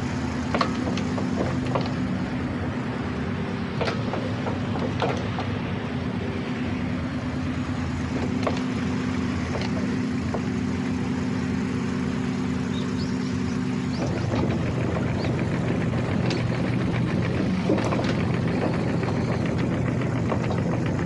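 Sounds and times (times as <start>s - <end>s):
excavator diesel engine running: 0.0s - 21.0s
machine clicks and creaks: 0.5s - 2.4s, 3.7s - 5.7s, 8.1s - 10.7s, 13.9s - 21.0s.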